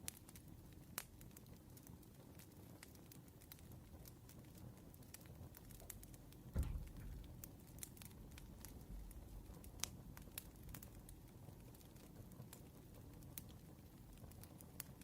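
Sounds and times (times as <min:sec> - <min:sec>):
campfire crackling: 0:00.0 - 0:15.0
soft low thump: 0:06.6 - 0:07.5, 0:08.2 - 0:09.6.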